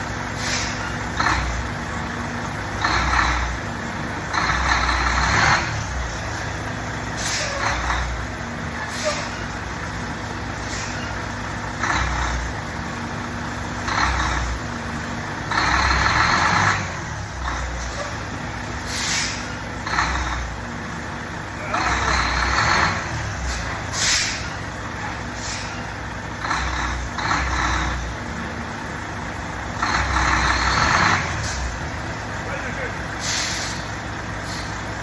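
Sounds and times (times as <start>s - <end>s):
truck engine running: 0.0s - 35.0s
air brake hiss: 0.3s - 0.9s, 7.1s - 7.6s, 8.8s - 9.4s, 10.6s - 11.2s, 18.8s - 19.6s, 23.9s - 24.5s, 25.3s - 25.9s, 33.2s - 34.8s.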